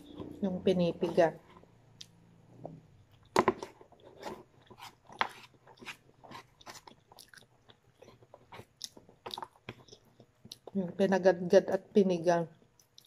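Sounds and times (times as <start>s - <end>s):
person chewing crunchy food: 3.9s - 10.8s.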